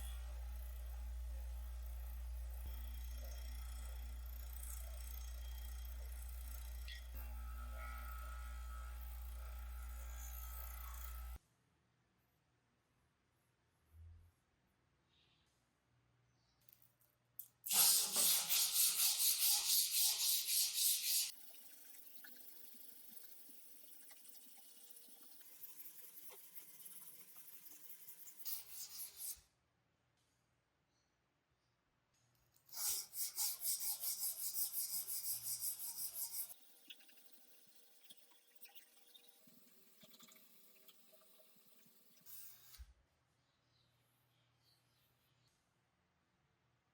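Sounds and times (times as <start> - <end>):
abrasive rubbing on metal part: 17.7 - 21.3
hand tool scraping strokes: 17.7 - 21.4, 22.2 - 29.4, 32.7 - 36.6.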